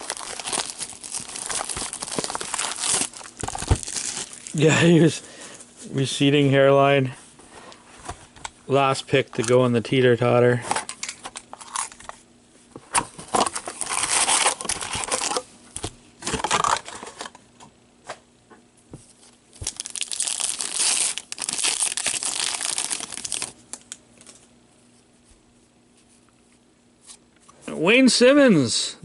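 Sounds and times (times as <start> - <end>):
cards rustling: 0.0 - 4.6, 19.6 - 24.4
card packs tearing open: 0.0 - 4.7, 13.2 - 15.5, 19.6 - 24.0
wrappers crinkling: 0.0 - 4.8, 13.4 - 15.4, 19.5 - 24.4.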